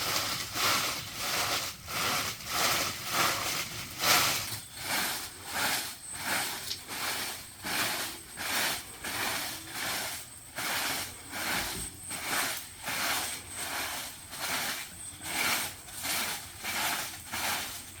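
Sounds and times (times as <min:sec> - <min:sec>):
hand saw cutting bamboo: 0:00.0 - 0:18.0.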